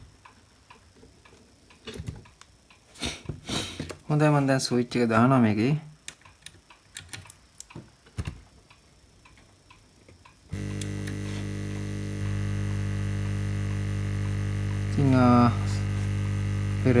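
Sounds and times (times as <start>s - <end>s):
air pump humming: 10.5s - 17.0s
switch clicks: 10.6s - 16.8s.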